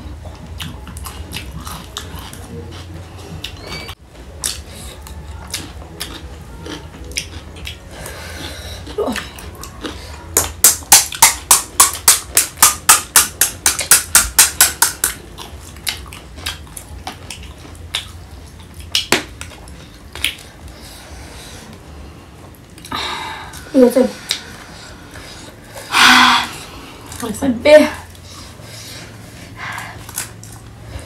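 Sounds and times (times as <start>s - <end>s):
crunchy snack being chewed: 0.3s - 12.0s, 15.2s - 20.9s, 29.7s - 30.8s.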